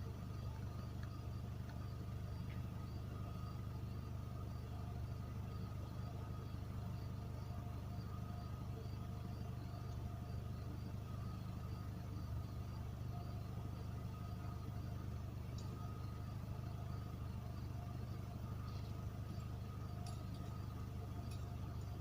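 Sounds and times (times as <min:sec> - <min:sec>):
faint steady tones: 0:00.0 - 0:22.0
model locomotive engine rumble: 0:00.0 - 0:22.0
light regular ticking: 0:14.7 - 0:22.0.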